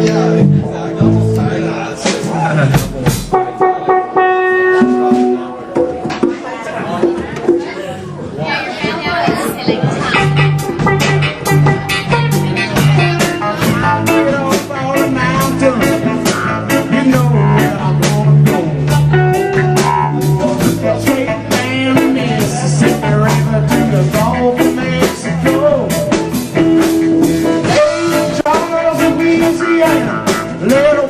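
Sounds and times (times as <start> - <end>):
bass line: 0.0 - 6.0, 9.8 - 31.0
live band playing upbeat tune: 0.0 - 7.8, 8.5 - 31.0
guitar: 0.0 - 31.0.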